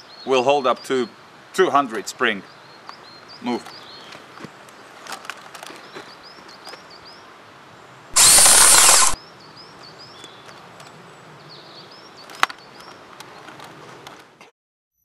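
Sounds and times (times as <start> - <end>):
airsoft rifle full-auto burst: 8.2 - 9.2
sharp click: 8.2 - 9.2.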